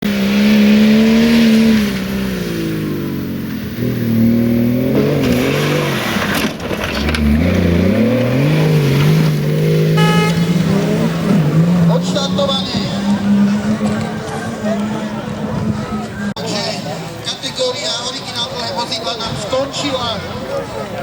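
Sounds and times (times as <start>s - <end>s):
diesel engine revving under load: 0.0s - 16.4s.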